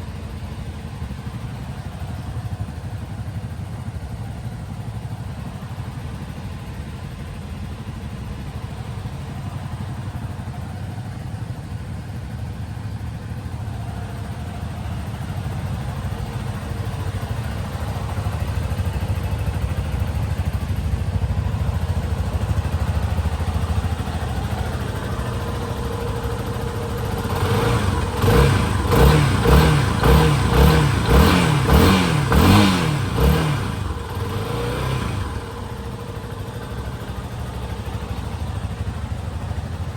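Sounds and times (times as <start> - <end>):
motorcycle engine idling: 0.0 - 39.9
motorcycle throttle blips: 14.8 - 39.9.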